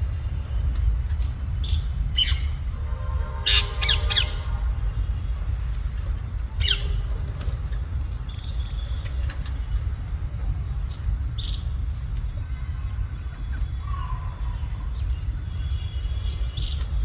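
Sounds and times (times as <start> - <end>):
low rumble: 0.0 - 8.0
parakeets squawking and chirping: 1.7 - 2.6, 3.4 - 5.2, 6.6 - 7.2.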